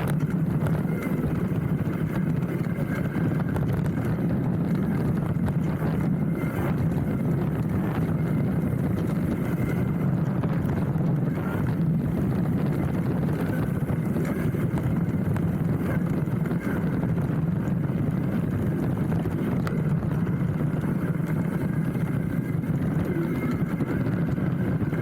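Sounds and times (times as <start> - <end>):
bike rattling and clicking: 0.0 - 25.0
bike tyres rolling on dirt trail: 0.0 - 25.0.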